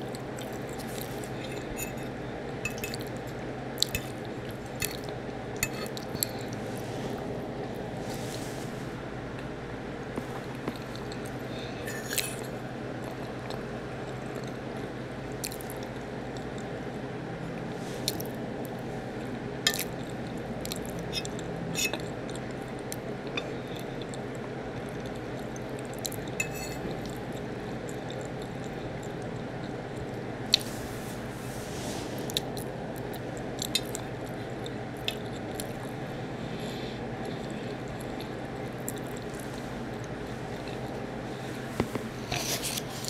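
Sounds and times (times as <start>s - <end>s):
chewing soft food: 0.0s - 2.1s, 18.0s - 30.7s, 32.3s - 36.1s, 37.2s - 41.5s
background hum: 0.0s - 43.0s.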